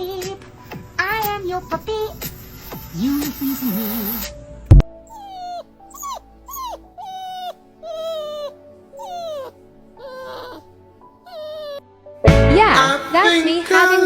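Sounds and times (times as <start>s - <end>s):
quiet background music: 0.0s - 14.0s
puppy whimpering: 5.0s - 11.8s.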